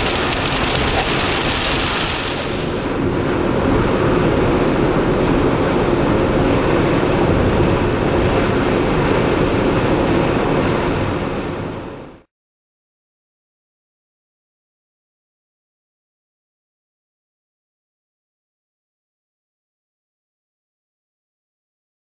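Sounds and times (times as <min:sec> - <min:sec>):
rain hiss: 0:00.0 - 0:02.9
car driving road noise: 0:00.0 - 0:12.2.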